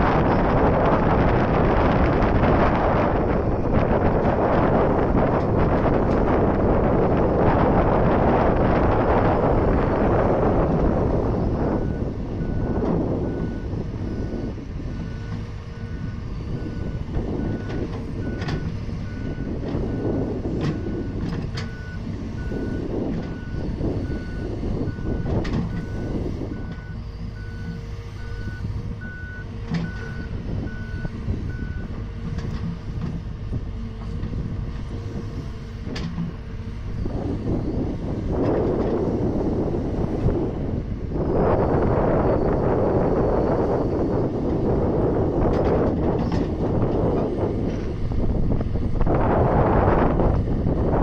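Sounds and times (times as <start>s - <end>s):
diesel engine running: 0.0s - 51.0s
excavator warning beeper: 8.4s - 32.5s.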